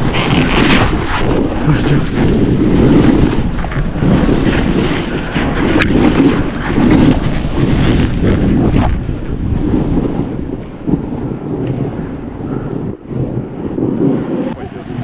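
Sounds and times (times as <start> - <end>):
snowboard scraping over snow: 0.0 - 15.0
wind buffeting microphone: 0.0 - 15.0.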